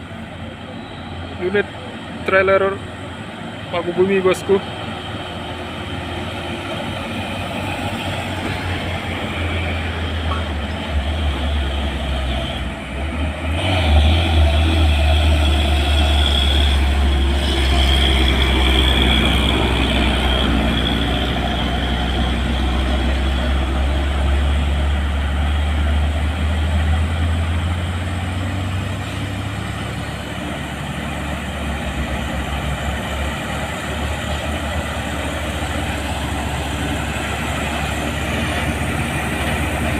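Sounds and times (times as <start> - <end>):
truck engines labouring uphill: 0.0 - 39.9.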